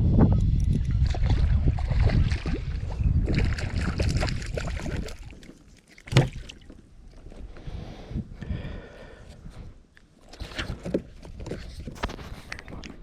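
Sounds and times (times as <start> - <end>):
water sloshing and splashing: 1.0 - 7.4.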